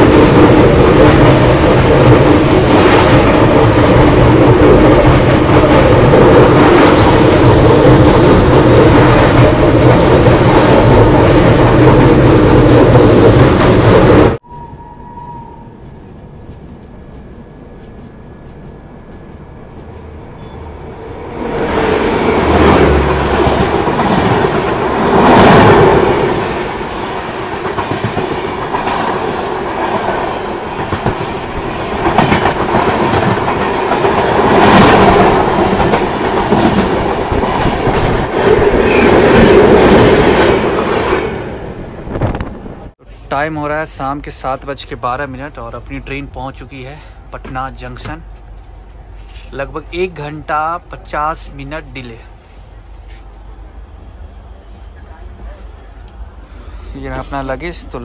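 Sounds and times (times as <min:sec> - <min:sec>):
passing train coaches clattering: 0:00.0 - 0:43.0
rumble of train wheels on track: 0:00.0 - 0:58.0.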